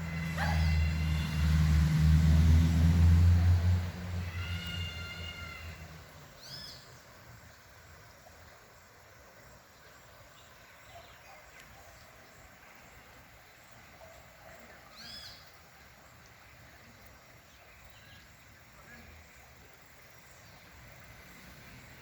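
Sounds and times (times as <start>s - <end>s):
passing vehicle rumble: 0.0s - 6.6s
bird calls: 0.1s - 1.5s, 4.2s - 7.2s, 9.8s - 16.4s.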